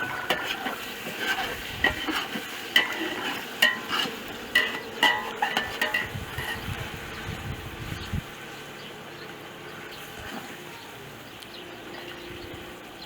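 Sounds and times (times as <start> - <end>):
metal utensil stirring in pot: 0.0 - 6.7.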